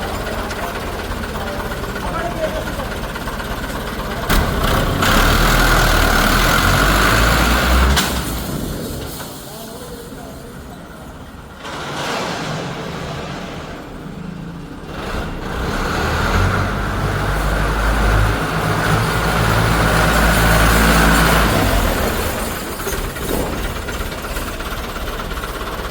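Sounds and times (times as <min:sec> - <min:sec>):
tractor diesel engine running: 0:00.0 - 0:25.9.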